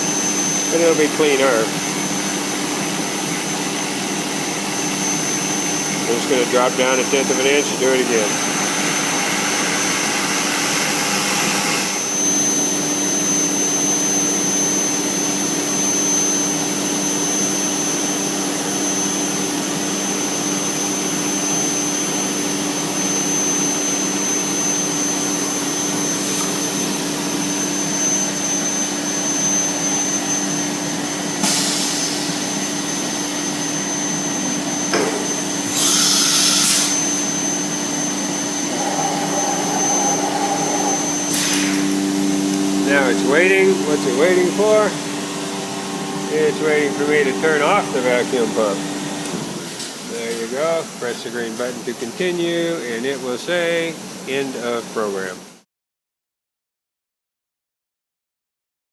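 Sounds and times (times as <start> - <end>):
vacuum pump hum: 0.0 - 51.2
router spindle cutting: 35.6 - 42.2.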